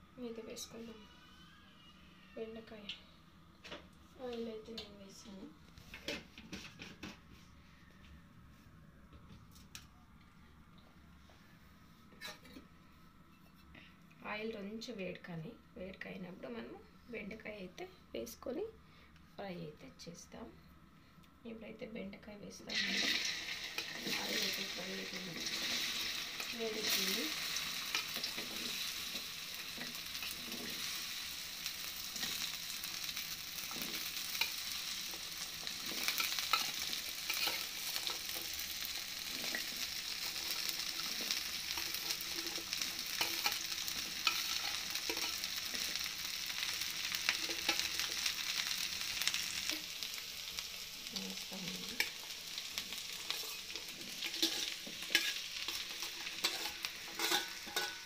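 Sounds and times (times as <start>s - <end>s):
okra sizzling in hot oil: 22.6s - 58.0s.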